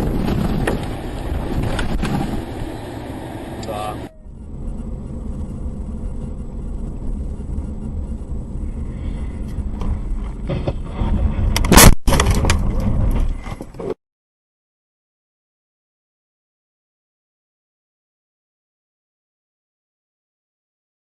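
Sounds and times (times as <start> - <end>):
car engine and road rumble: 0.0 - 14.0
loud bang: 10.5 - 12.8.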